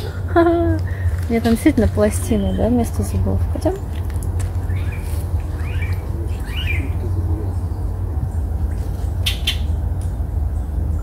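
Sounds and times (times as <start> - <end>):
bird calls: 4.6 - 11.0.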